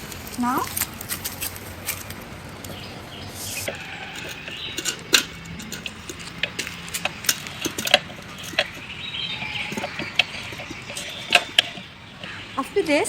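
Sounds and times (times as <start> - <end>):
metallic clicks and knocks: 3.6 - 12.4.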